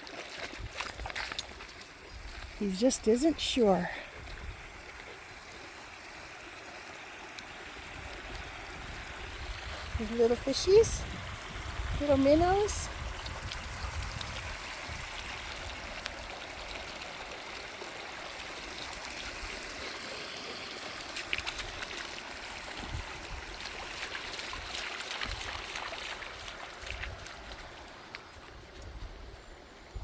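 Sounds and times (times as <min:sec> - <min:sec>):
small splashes: 0:00.0 - 0:01.8, 0:12.2 - 0:28.8.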